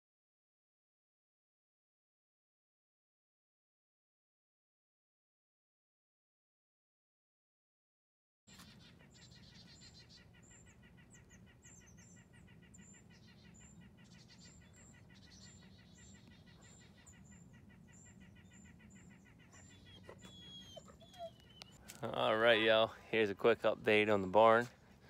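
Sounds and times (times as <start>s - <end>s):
faint high bird chirps: 8.5s - 22.2s.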